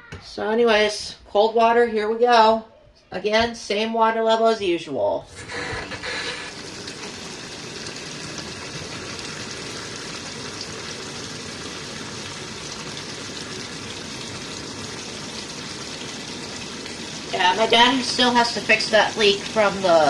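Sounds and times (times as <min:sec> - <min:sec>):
water gushing from a hose: 0:05.3 - 0:20.0.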